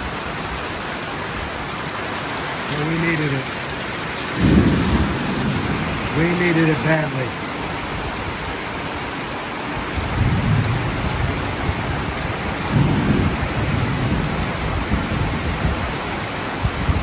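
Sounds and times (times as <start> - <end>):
heavy rain pouring: 0.0 - 17.0
thunder rumbling: 2.8 - 9.0, 9.8 - 17.0.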